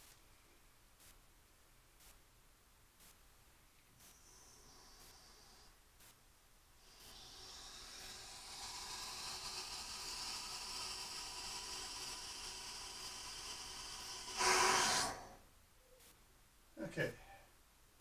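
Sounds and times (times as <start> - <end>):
water hissing through valve: 6.8 - 15.4.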